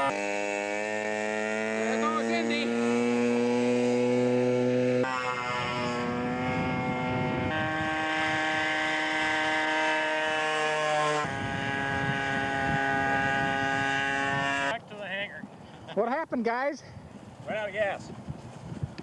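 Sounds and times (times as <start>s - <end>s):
model airplane engine running: 0.0s - 14.9s.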